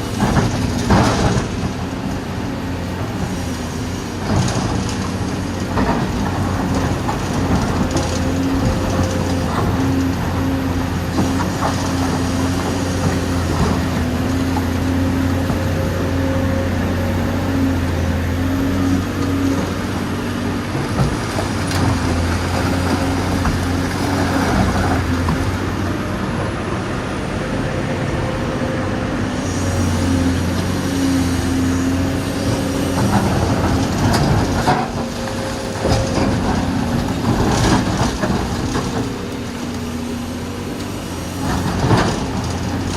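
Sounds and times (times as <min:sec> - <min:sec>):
excavator diesel engine drone: 0:00.0 - 0:42.9.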